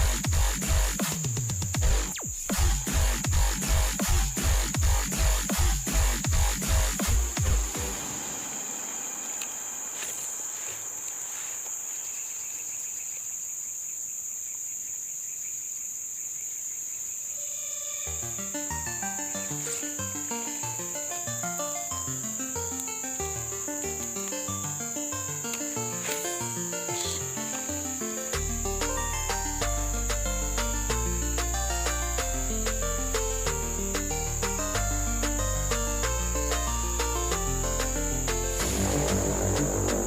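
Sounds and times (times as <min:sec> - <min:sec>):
high-pitched insect chorus: 0:00.1 - 0:40.0
melodic background music: 0:18.1 - 0:40.0.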